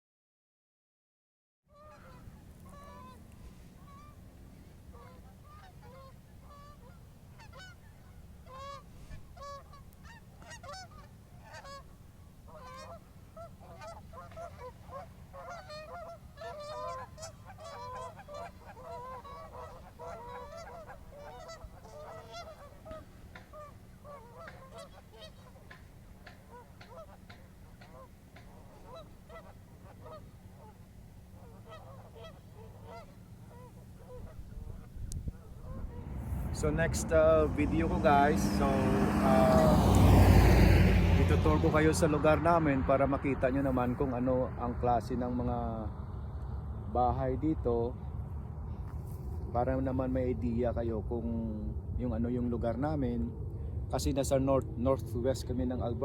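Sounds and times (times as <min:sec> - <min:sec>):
geese honking: 0:01.7 - 0:46.0
steady low rumble: 0:02.3 - 0:56.0.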